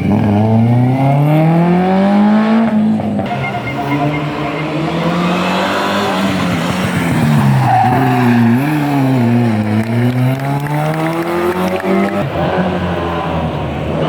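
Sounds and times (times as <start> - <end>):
rally car engine revving: 0.0 - 14.0
tyre squeal: 3.3 - 9.3.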